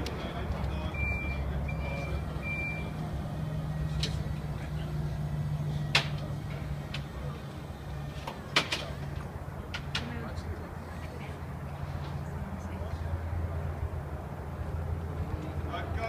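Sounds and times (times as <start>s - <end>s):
truck engine droning: 0.0s - 16.0s
truck reversing alarm beeps: 0.2s - 9.1s.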